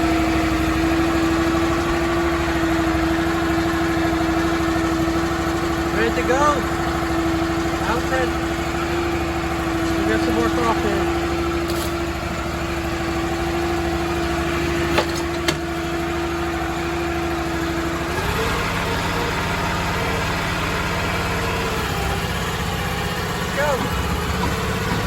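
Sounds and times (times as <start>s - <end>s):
boat engine running and revving: 0.0s - 25.0s.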